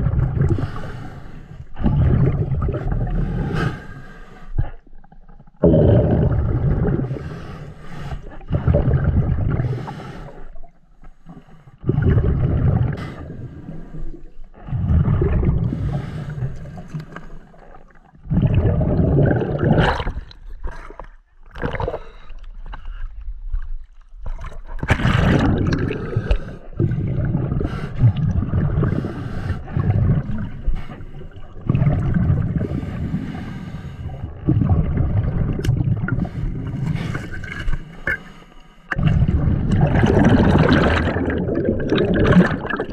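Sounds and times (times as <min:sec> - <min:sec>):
exhaled bubbles gurgling underwater: 0:00.0 - 0:42.9.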